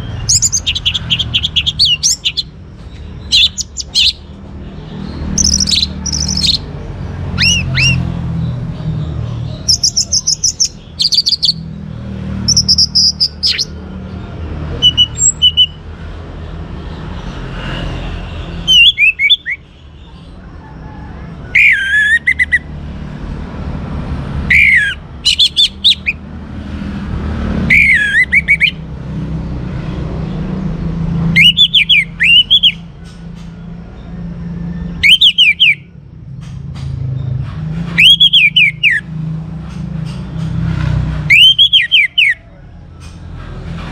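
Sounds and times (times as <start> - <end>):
thrush singing warbling whistles: 0.0 - 2.6, 3.2 - 4.3, 5.4 - 6.7, 7.3 - 8.2, 9.5 - 11.7, 12.5 - 13.8, 14.8 - 15.8, 17.2 - 19.8, 21.5 - 22.7, 24.5 - 26.2, 27.7 - 28.8, 31.3 - 32.8, 34.8 - 36.0, 37.9 - 39.1, 41.3 - 42.6.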